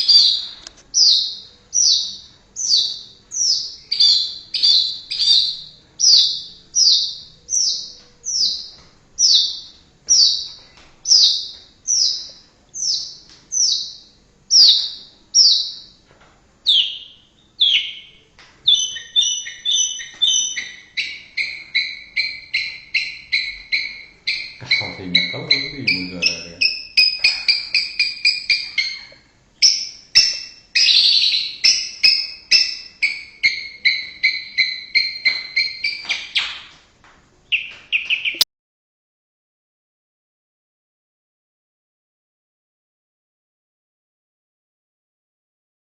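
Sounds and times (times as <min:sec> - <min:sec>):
bird whistling song: 0:00.0 - 0:16.0, 0:16.6 - 0:36.8, 0:37.5 - 0:38.4.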